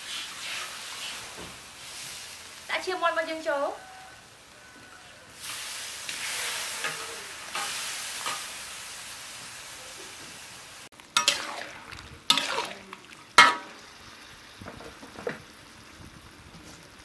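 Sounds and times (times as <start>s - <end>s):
food sizzling in hot oil: 0.0s - 17.0s
metal ladle clanking in wok: 11.2s - 13.8s.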